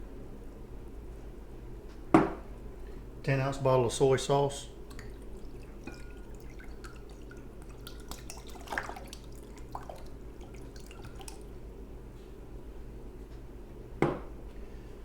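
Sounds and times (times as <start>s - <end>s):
steady low hum: 0.0s - 15.0s
sauce glugging from a bottle: 4.8s - 11.6s.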